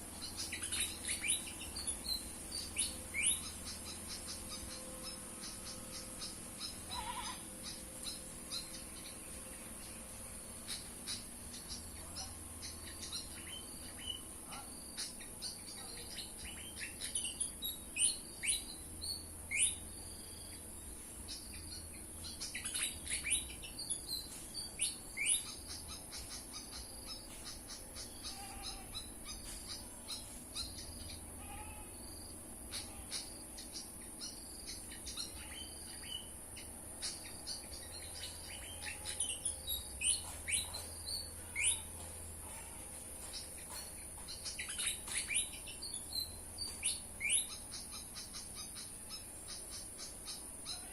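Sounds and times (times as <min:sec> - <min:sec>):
steady high hiss: 0:00.0 - 0:42.4
small songbirds chirping: 0:00.0 - 0:50.9
sharp falling bird calls: 0:00.3 - 0:09.2.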